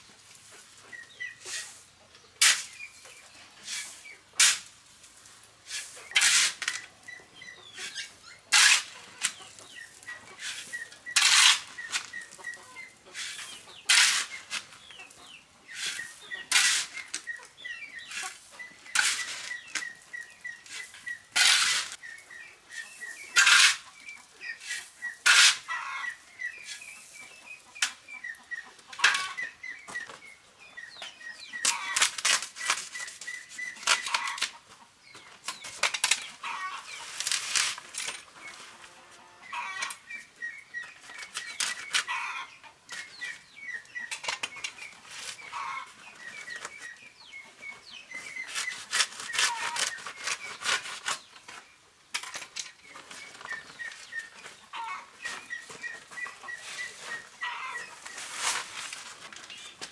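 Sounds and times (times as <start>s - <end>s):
chickens peeping: 0.4s - 4.4s, 5.9s - 52.0s, 52.7s - 59.9s
sharp scraping strokes: 5.7s - 6.8s, 7.8s - 14.9s, 15.7s - 17.4s, 18.0s - 19.9s, 20.6s - 22.0s, 22.7s - 24.0s, 24.6s - 25.8s, 48.2s - 51.3s, 55.2s - 59.9s.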